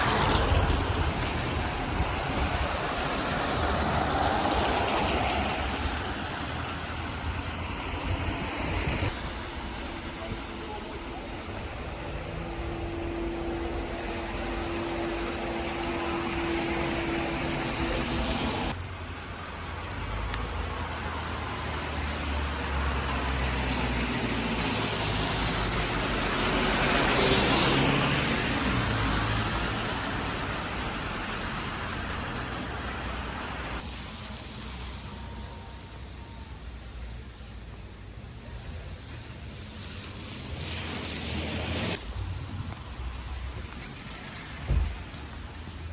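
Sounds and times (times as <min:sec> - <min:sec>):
cars passing on street: 0:00.0 - 0:45.9.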